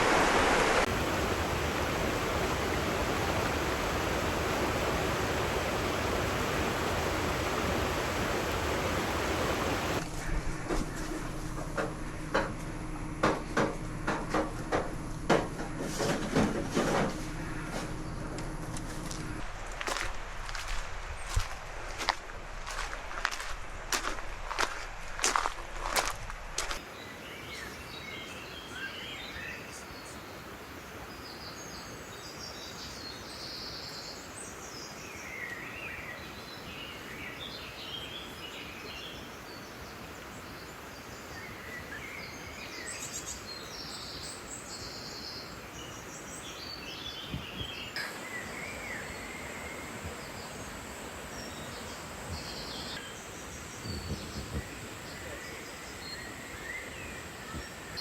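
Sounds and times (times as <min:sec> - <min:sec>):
steady background hiss: 0:00.0 - 0:58.0
soft low knocks: 0:10.0 - 0:26.8.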